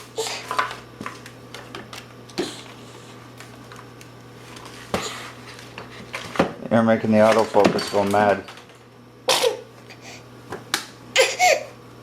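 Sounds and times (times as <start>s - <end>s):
objects clicking and knocking: 7.2s - 8.8s.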